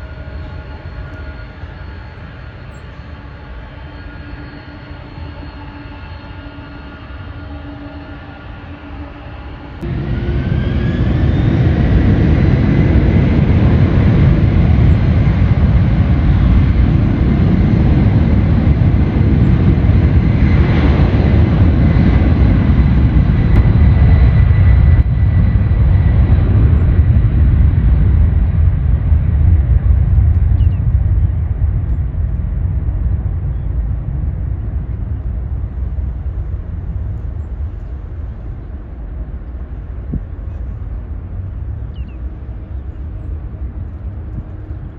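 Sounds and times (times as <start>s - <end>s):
jet airliner passing: 0.0s - 44.9s.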